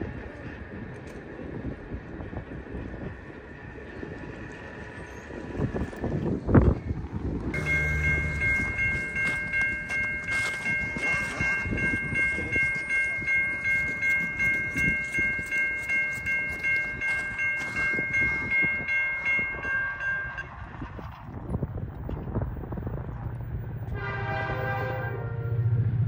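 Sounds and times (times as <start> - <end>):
freight train rumbling on rails: 0.0 - 26.0
warning bell ringing: 7.6 - 20.6.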